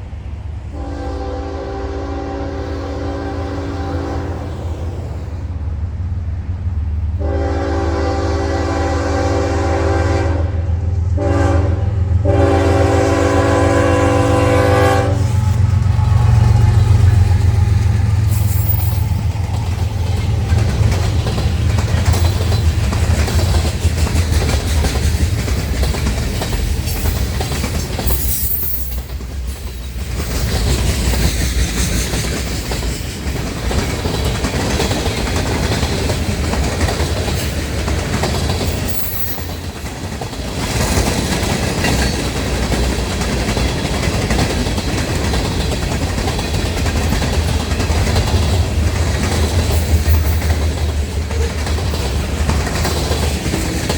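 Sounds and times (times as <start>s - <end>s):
locomotive engine rumble: 0.0s - 53.9s
train air horn blasts: 0.7s - 4.8s, 7.2s - 17.2s
wheels clattering on rails: 12.3s - 53.9s.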